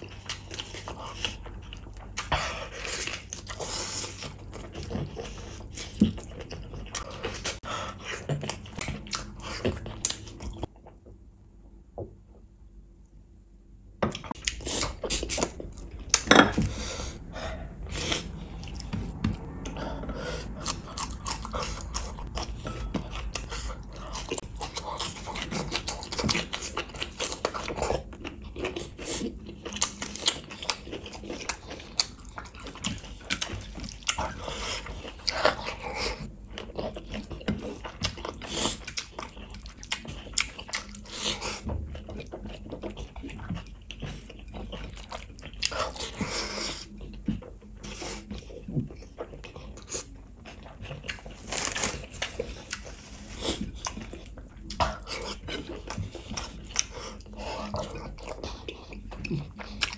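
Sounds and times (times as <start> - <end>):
wet chewing and mouth clicks: 14.1 - 59.9.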